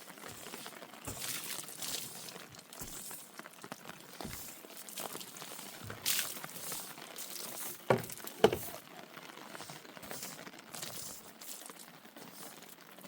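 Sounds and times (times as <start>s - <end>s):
crackling and rustling: 0.0s - 13.0s
sharp knocks: 7.9s - 8.8s.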